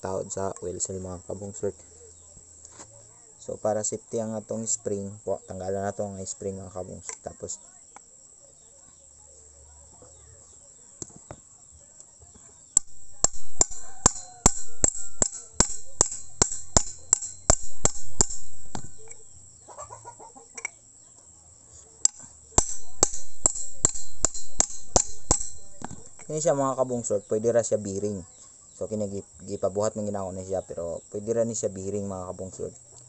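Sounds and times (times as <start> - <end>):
sharp metal taps: 12.8 - 19.2, 22.0 - 26.6
chicken clucking: 18.9 - 20.8.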